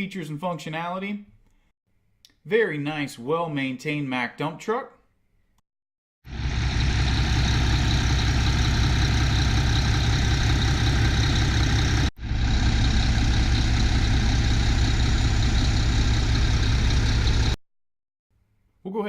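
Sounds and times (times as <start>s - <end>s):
diesel truck engine idling: 6.3s - 17.6s.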